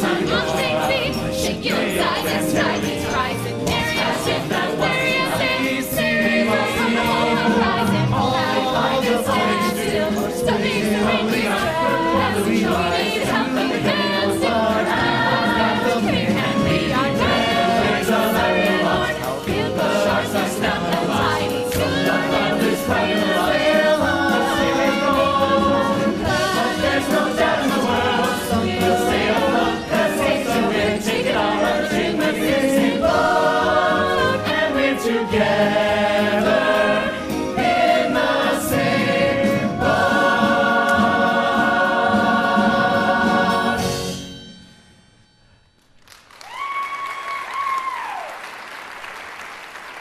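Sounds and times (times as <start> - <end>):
chorus singing show tune: 0.0 - 44.4
audience applause: 46.0 - 50.0
audience cheering: 46.3 - 50.0.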